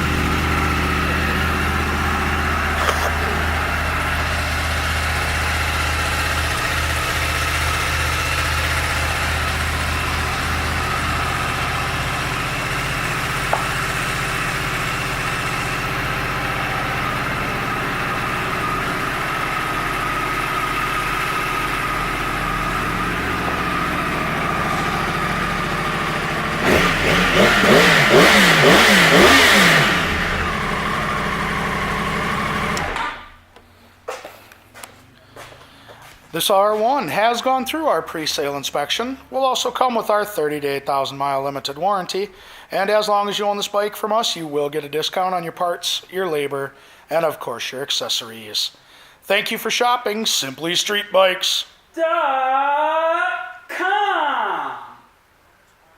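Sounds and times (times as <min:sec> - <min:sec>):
motorcycle engine idling and revving: 0:00.0 - 0:33.4.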